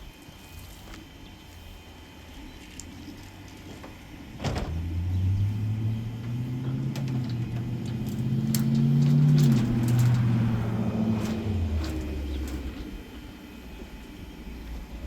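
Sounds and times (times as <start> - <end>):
electric chainsaw motor humming: 4.8 - 13.4.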